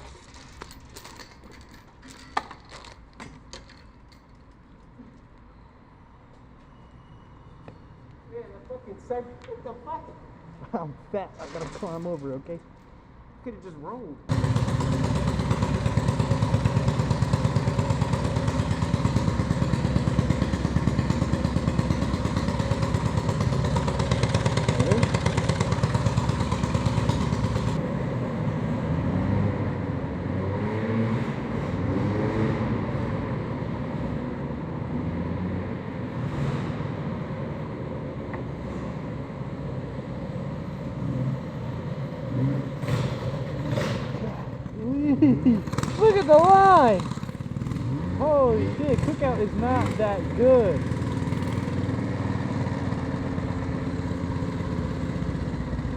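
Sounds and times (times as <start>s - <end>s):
engine hum: 7.6s - 55.9s
moped engine running: 14.3s - 35.0s, 36.7s - 55.9s.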